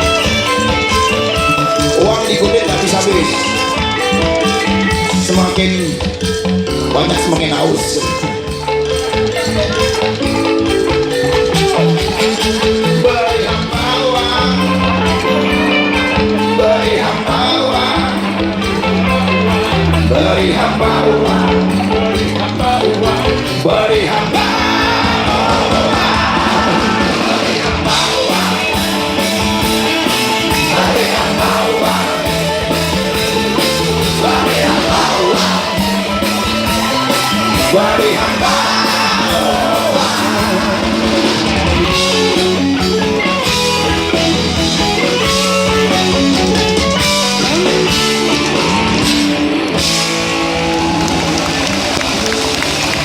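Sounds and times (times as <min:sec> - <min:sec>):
electric guitars: 0:00.0 - 0:53.0
live rock band playing: 0:00.0 - 0:53.0
person singing: 0:11.1 - 0:44.2.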